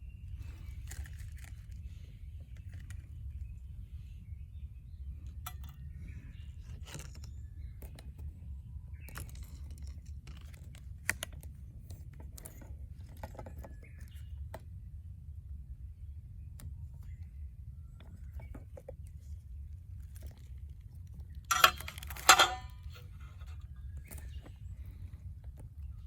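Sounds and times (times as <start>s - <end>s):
metal pieces clinking: 21.5s - 22.7s.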